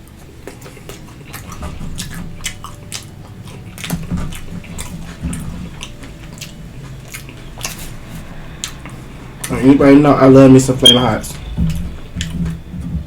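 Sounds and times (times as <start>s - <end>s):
wet mouth sounds: 0.0s - 9.6s
chewing crunchy food: 0.0s - 10.0s.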